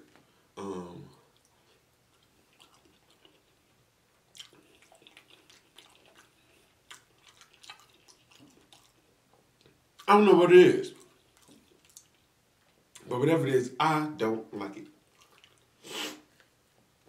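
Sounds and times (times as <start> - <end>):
faint wet chewing: 1.2 - 10.2, 10.8 - 13.1, 14.8 - 16.9.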